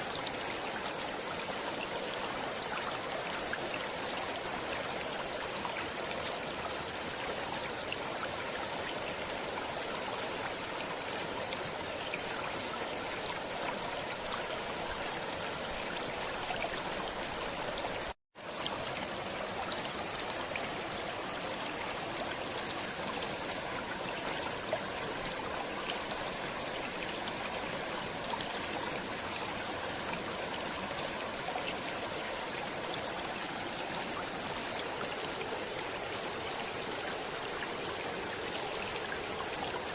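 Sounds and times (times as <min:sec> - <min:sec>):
stream of running water: 0:00.0 - 0:39.9.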